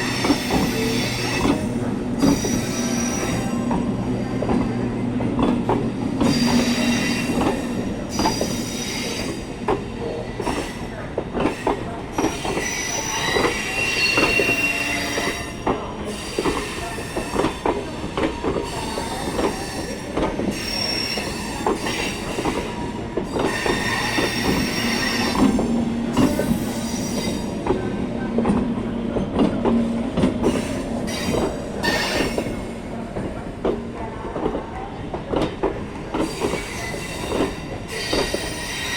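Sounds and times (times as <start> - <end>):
train wheels squealing: 0.0 - 3.9, 6.2 - 27.6, 30.4 - 32.7, 36.1 - 38.9
train wheels clacking on track: 0.0 - 38.9.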